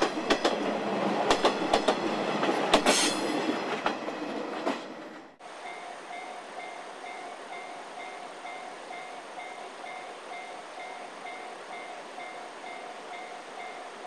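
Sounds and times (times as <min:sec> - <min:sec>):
train wheels clattering over rails: 0:00.0 - 0:05.4.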